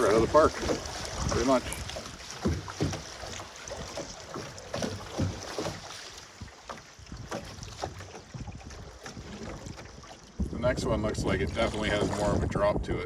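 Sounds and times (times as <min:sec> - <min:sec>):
wind noise on microphone: 0:00.0 - 0:02.2, 0:06.4 - 0:13.0
paddle splashing water: 0:00.0 - 0:13.0.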